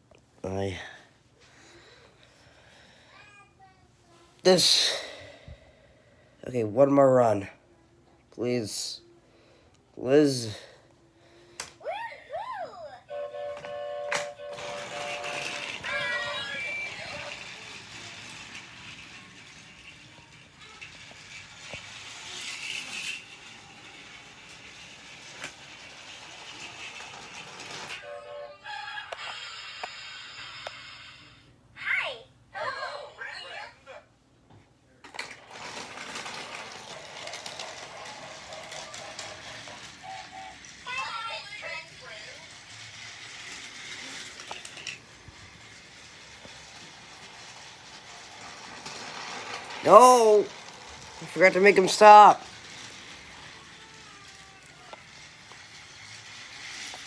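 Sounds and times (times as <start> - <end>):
toy train motor whirring: 11.6 - 34.0, 35.1 - 57.0.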